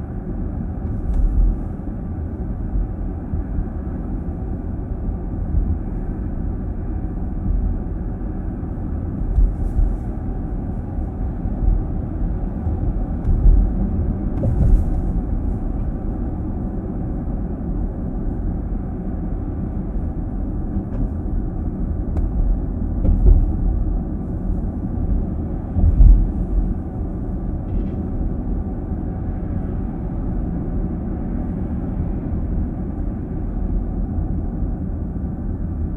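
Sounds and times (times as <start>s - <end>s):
tyre and road noise: 0.0s - 35.9s
low bumps: 0.8s - 1.9s, 9.0s - 16.9s, 20.6s - 28.8s.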